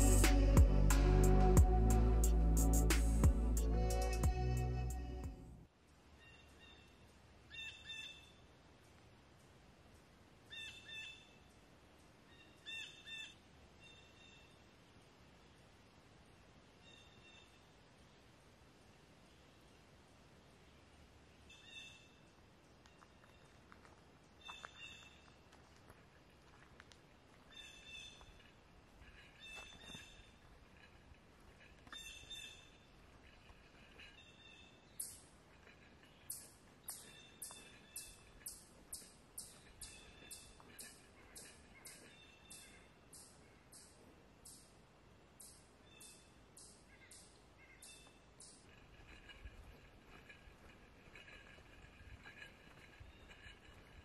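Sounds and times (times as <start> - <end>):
faint background hiss: 0.0 - 54.0
faint bird calls: 6.1 - 8.5, 10.5 - 11.6, 12.2 - 14.7, 20.8 - 23.6, 24.3 - 25.4, 27.4 - 44.8, 45.4 - 50.4.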